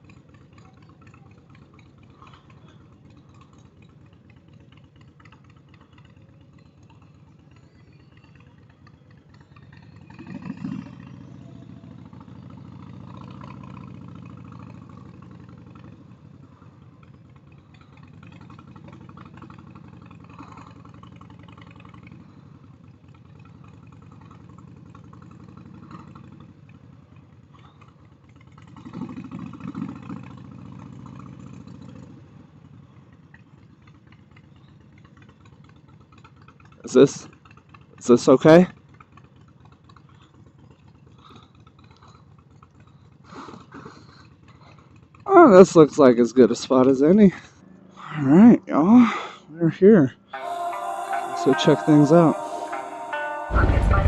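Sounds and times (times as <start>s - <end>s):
motorcycle engine revving: 0.0s - 32.7s
motorcycle engine idling: 0.0s - 49.6s.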